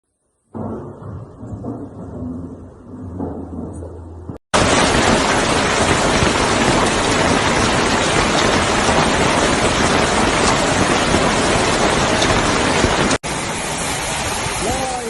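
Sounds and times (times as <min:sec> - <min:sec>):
hail pelting down: 0:04.6 - 0:15.0.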